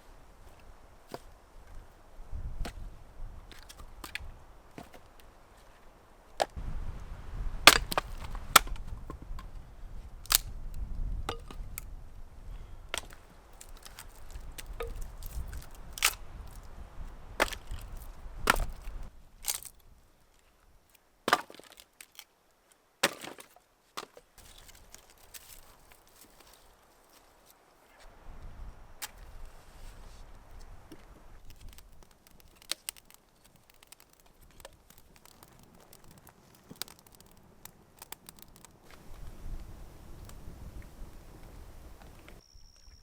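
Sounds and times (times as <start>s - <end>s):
wood chopping knocks: 7.7s - 8.9s.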